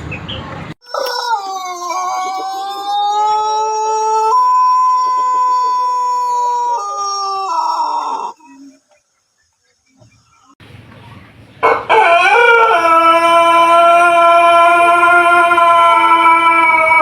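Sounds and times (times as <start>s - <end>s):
rooster crowing: 0.8s - 8.6s, 11.6s - 17.0s.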